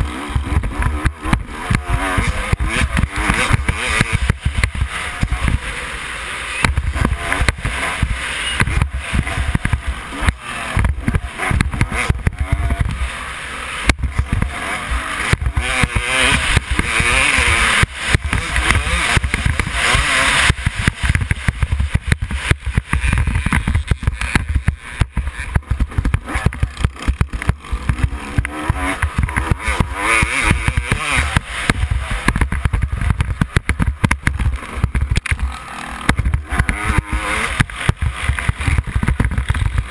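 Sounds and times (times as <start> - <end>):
dirt bike engine running hard: 0.0 - 39.9.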